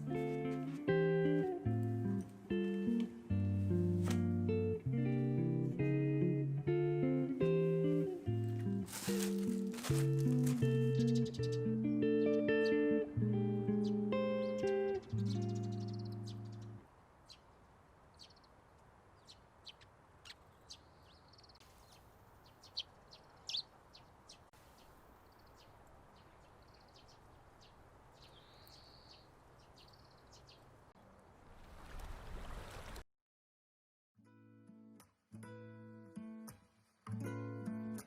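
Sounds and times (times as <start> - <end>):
small birds chirping: 9.9 - 13.1, 13.7 - 30.9.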